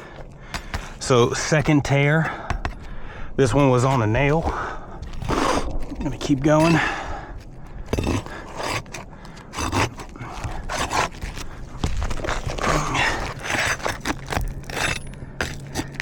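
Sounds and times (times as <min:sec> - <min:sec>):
tool clicking against shingle: 0:00.0 - 0:03.0
shingle tearing: 0:00.0 - 0:16.0
tool scraping shingle: 0:00.0 - 0:16.0.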